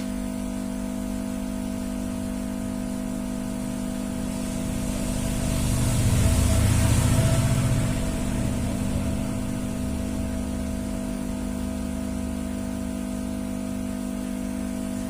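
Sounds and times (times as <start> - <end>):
motorcycle engine idling: 3.1 - 12.4.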